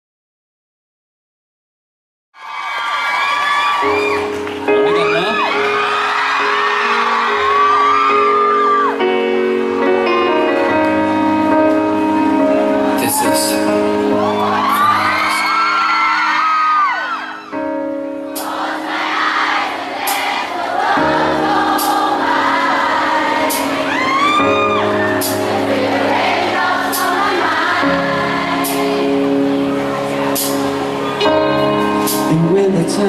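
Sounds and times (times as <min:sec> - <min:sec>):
fans screaming: 0:02.4 - 0:09.7, 0:12.9 - 0:17.7, 0:20.9 - 0:28.3
keyboard chords with soft beat: 0:04.2 - 0:15.4, 0:17.5 - 0:33.0.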